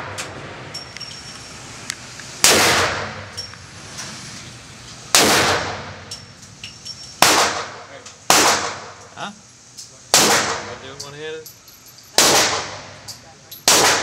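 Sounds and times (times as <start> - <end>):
handgun gunshots: 7.2 - 7.7, 8.3 - 8.9, 10.2 - 10.7, 12.2 - 12.8, 13.6 - 14.0.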